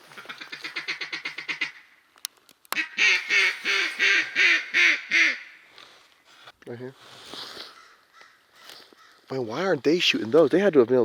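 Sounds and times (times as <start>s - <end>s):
duck quacking: 0.0s - 1.9s, 2.8s - 5.6s.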